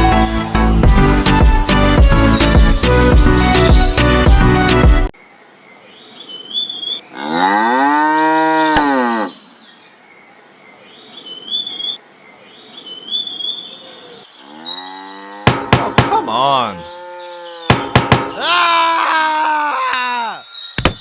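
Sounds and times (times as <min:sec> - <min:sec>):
cow mooing: 0:07.1 - 0:09.4, 0:14.5 - 0:15.7, 0:16.8 - 0:17.8.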